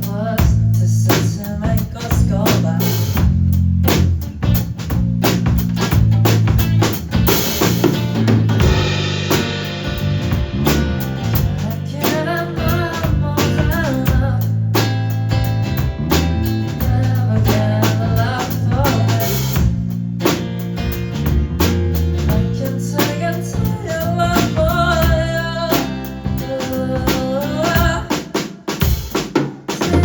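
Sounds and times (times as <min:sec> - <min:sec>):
drum kit beats: 0:00.0 - 0:30.0
low instrumental accompaniment: 0:05.5 - 0:12.8
person singing: 0:11.3 - 0:14.9, 0:16.7 - 0:19.6, 0:22.3 - 0:28.4, 0:29.8 - 0:30.0.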